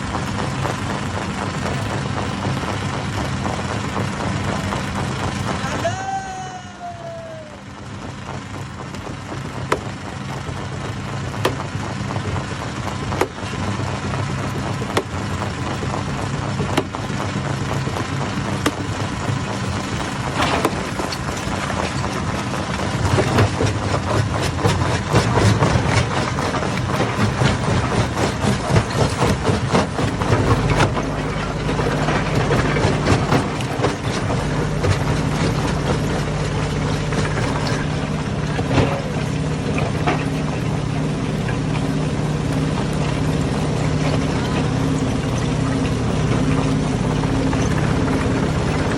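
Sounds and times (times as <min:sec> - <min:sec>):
stone crusher engine hum: 0:00.0 - 0:48.9
rocks cracking and knocking: 0:08.2 - 0:45.2.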